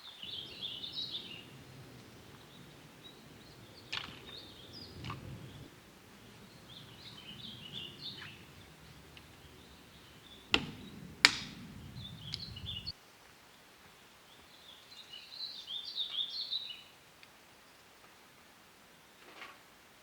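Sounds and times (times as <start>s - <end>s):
birds chirping and singing: 0.0s - 12.9s
sharp clicks: 10.4s - 12.9s.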